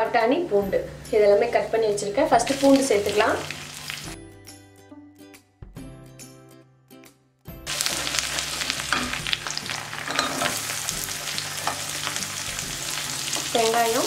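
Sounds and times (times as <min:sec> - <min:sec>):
soft background music: 0:00.0 - 0:14.0
oil sizzling: 0:02.3 - 0:04.2, 0:07.7 - 0:14.0.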